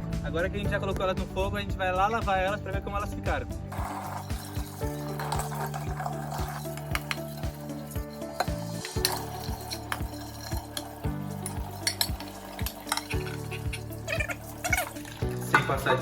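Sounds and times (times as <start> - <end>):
background music with steady beat: 0.0 - 16.0
metal pots clinking: 3.7 - 16.0
scrubbing pots: 3.7 - 16.0
water splashing: 3.7 - 16.0.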